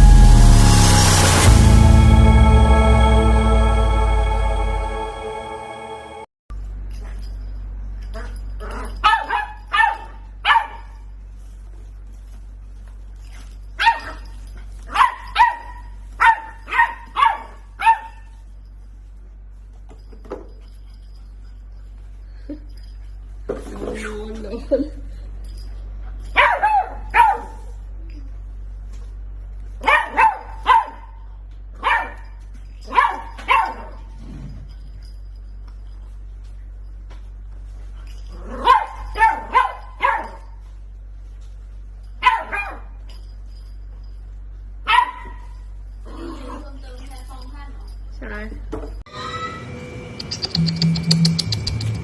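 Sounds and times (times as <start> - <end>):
steady low hum: 0.0 - 48.7
dog barking: 8.7 - 11.0, 14.9 - 18.3, 26.4 - 27.8, 29.8 - 31.2, 31.8 - 34.1, 38.5 - 40.6, 42.2 - 43.0, 44.9 - 45.6.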